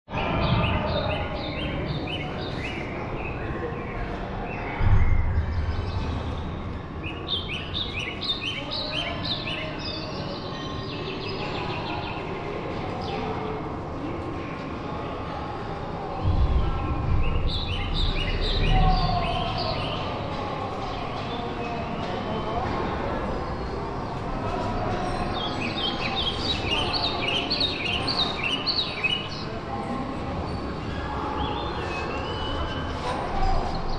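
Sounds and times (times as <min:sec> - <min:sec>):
songbird singing: 0:00.1 - 0:13.2, 0:16.2 - 0:24.2, 0:25.0 - 0:29.5
steady low rumble: 0:04.7 - 0:07.5, 0:16.2 - 0:19.8
low background rumble: 0:16.2 - 0:19.3.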